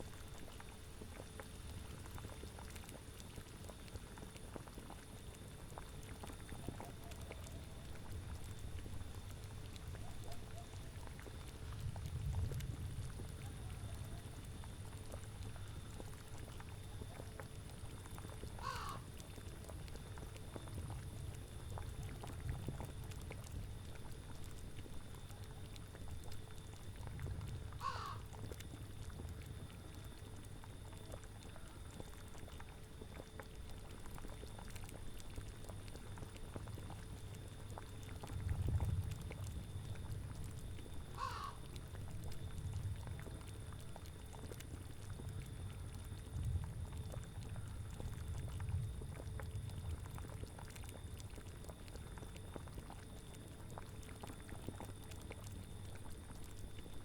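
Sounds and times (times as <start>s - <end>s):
cauldron bubbling: 0.2s - 27.7s, 28.3s - 57.0s
crow cawing: 18.6s - 19.1s, 27.8s - 28.2s, 41.2s - 41.6s.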